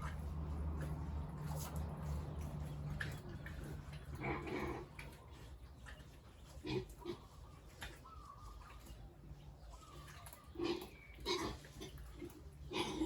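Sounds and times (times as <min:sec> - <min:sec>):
pigs grunting: 0:03.2 - 0:05.6, 0:06.6 - 0:07.6, 0:10.4 - 0:13.0.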